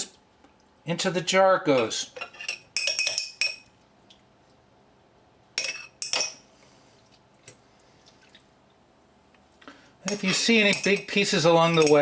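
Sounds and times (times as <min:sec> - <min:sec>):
utensil clinking on glass jar: 0:01.8 - 0:03.7, 0:10.1 - 0:12.0.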